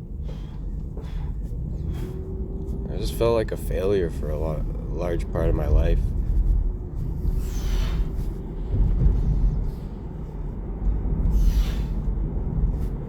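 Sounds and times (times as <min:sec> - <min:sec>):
vehicle road rumble: 0:00.0 - 0:13.0.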